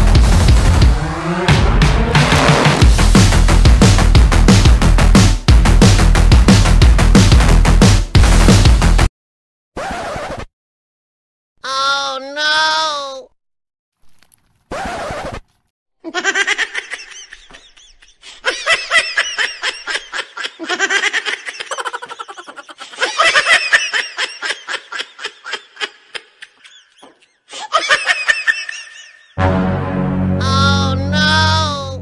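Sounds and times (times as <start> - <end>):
person laughing: 16.1 - 29.4.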